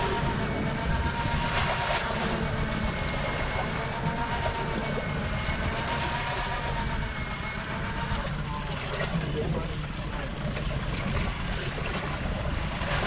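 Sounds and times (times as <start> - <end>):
small electric motor whining: 0.0 - 8.8
sea noise: 0.0 - 13.0
wind: 0.0 - 13.0.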